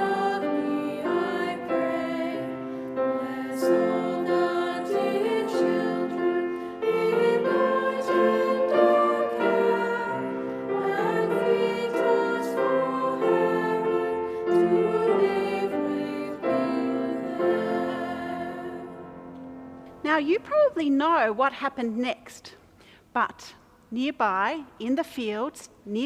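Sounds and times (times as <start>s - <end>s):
choir singing: 0.0s - 19.6s
piano accompaniment: 0.0s - 20.7s.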